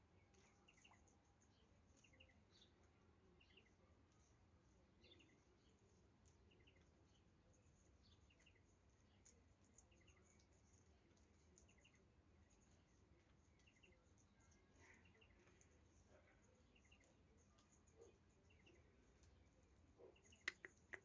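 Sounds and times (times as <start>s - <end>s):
small birds chirping: 0.0s - 21.0s
high ticks: 19.2s - 21.0s.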